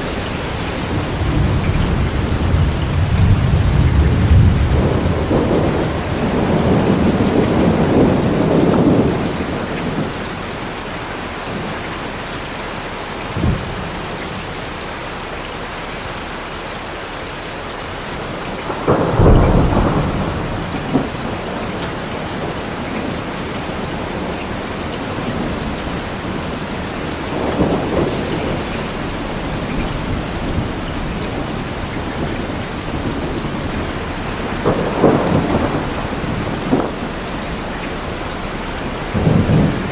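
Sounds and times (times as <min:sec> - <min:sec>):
rolling thunder rumbles: 0:00.0 - 0:14.9, 0:17.6 - 0:39.9
steady rain falling: 0:00.0 - 0:39.9
sharp thunder crack: 0:18.7 - 0:22.5, 0:25.4 - 0:39.9.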